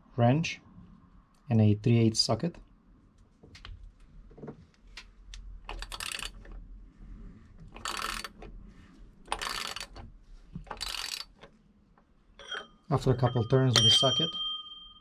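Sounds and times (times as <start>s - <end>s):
socket ratchet clicking: 5.7s - 6.5s, 7.8s - 8.5s, 9.3s - 11.6s.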